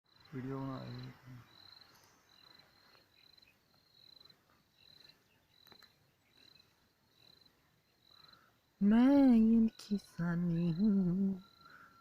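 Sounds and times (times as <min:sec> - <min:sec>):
cricket chirping: 0:00.1 - 0:12.0.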